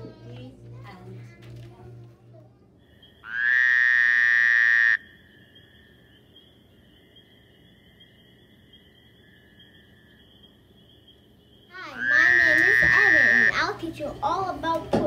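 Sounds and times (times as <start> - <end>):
faint high-pitched chirring: 0.0 - 14.6
frog trill: 3.0 - 13.6.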